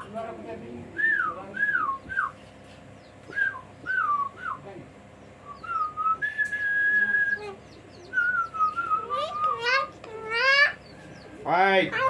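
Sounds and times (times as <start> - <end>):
whistling: 1.0 - 2.3, 3.3 - 4.6, 5.4 - 7.4, 8.1 - 9.6.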